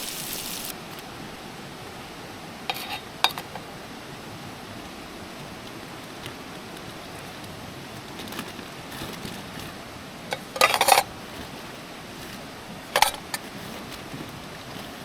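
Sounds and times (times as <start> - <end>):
metal camp gear clattering: 5.7 - 15.0.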